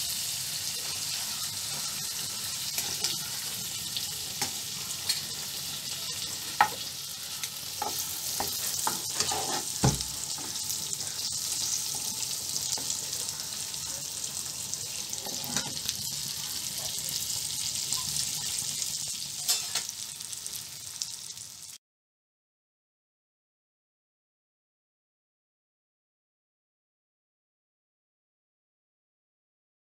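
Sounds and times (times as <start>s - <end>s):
eggs sizzling in oil: 0.0s - 21.8s
spatula scraping pan: 7.4s - 10.8s.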